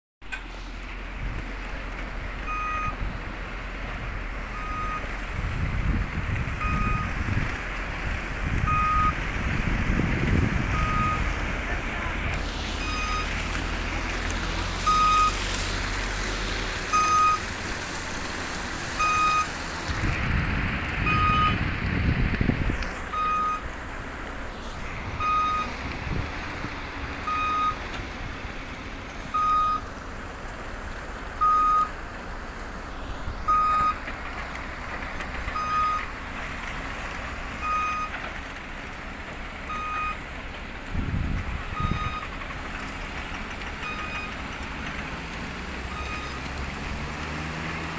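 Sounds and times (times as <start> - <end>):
diesel engine running: 0.2 - 47.9
reversing alarm beeps: 2.5 - 3.0, 4.5 - 5.1, 6.6 - 7.2, 8.7 - 9.2, 10.7 - 11.3, 12.8 - 13.3, 14.9 - 15.4, 17.0 - 17.4, 21.1 - 21.6, 23.2 - 23.6, 25.2 - 25.7, 27.2 - 27.8, 29.4 - 29.9, 33.5 - 34.0, 35.6 - 36.1, 39.7 - 40.2, 41.7 - 42.3.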